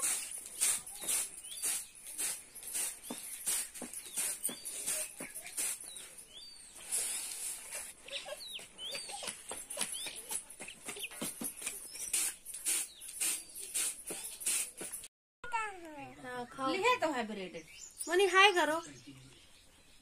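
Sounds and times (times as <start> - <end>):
birds chirping and clucking: 0.0 - 14.8.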